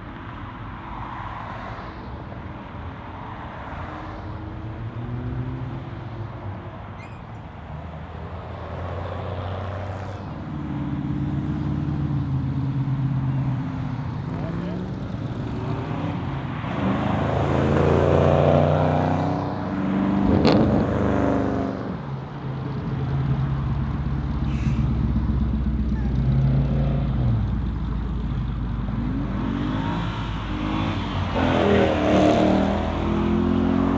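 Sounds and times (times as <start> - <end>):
muscle car engines revving: 7.7 - 22.0, 23.2 - 33.9.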